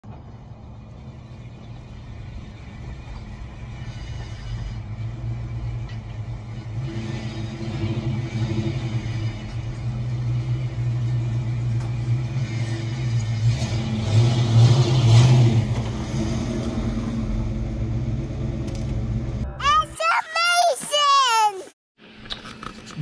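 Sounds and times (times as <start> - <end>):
car engine idling: 0.0 - 14.2, 15.6 - 19.4.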